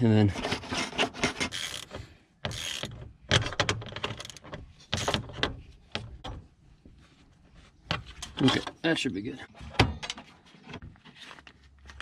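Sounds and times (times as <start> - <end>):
plastic shroud clunking and rattling: 0.4 - 6.6.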